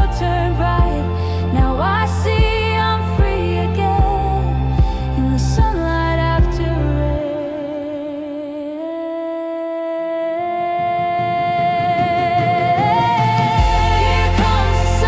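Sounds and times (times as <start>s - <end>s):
deep bass: 0.0s - 7.2s, 13.6s - 15.0s
person singing with vibrato: 0.0s - 15.0s.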